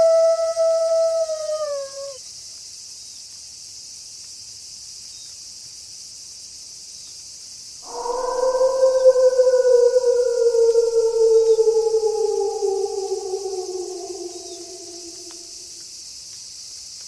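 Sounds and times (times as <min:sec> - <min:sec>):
wolf howling: 0:00.0 - 0:02.2, 0:07.8 - 0:15.8
steady high hiss: 0:07.9 - 0:15.8.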